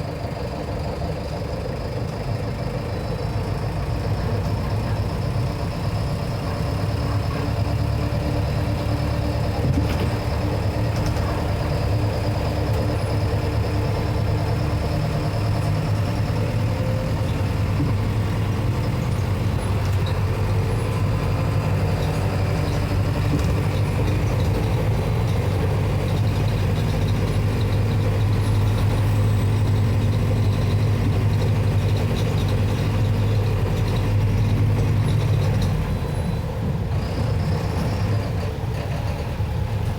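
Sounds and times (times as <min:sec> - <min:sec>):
diesel bus engine humming: 0:00.0 - 0:39.9.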